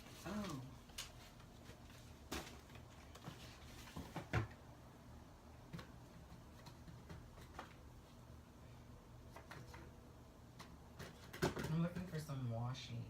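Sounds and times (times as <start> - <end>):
craft supplies knocking and clattering: 10.6 - 11.8.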